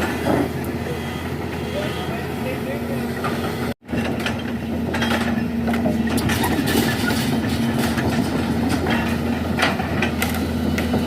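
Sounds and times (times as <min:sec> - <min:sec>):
heavy engine running: 0:00.0 - 0:11.0
knocks and clanks: 0:03.2 - 0:11.0.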